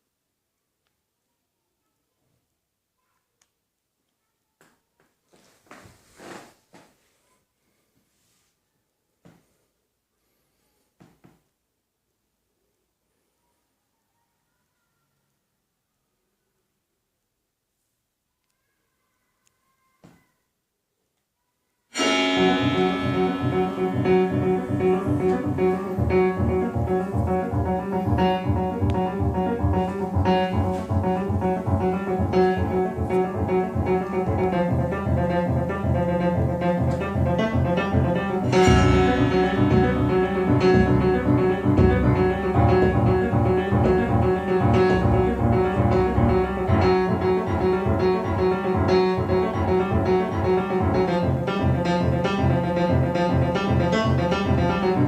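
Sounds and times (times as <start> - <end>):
instrumental music with plucked bass: 22.0 - 55.0.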